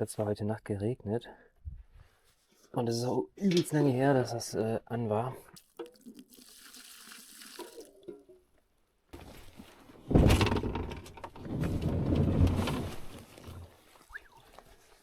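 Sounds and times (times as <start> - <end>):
water pouring in gushes: 5.6 - 8.0.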